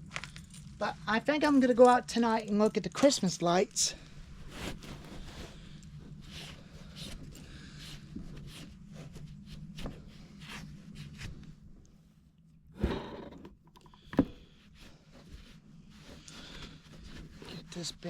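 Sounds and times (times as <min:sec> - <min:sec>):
faint steady hum: 0:00.0 - 0:18.0
handling rustling and clicking: 0:04.4 - 0:12.0.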